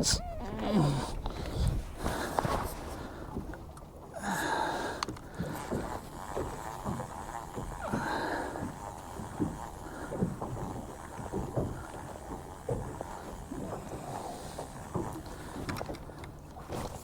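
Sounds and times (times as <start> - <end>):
water slapping against boat hull: 4.6 - 17.0.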